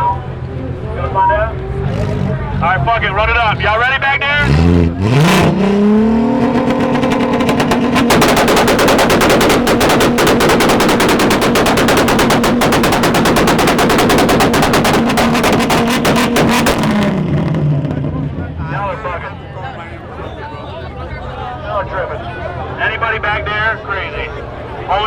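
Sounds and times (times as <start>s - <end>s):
car engine revving: 0.0s - 19.2s
rapid exhaust pops: 5.4s - 18.3s.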